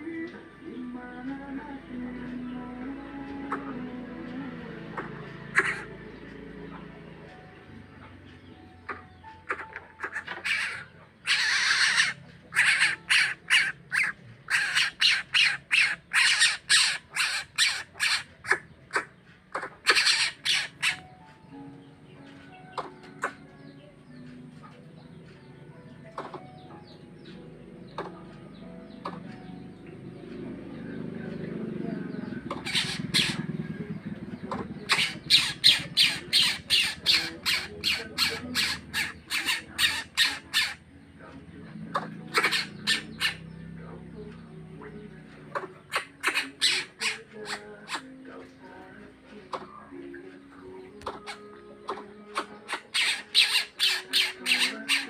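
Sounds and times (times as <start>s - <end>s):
bird giving harsh raspy squawks: 5.0s - 6.0s, 8.9s - 21.2s, 32.5s - 33.6s, 34.6s - 41.0s, 41.9s - 43.6s, 45.5s - 48.1s, 52.3s - 55.0s.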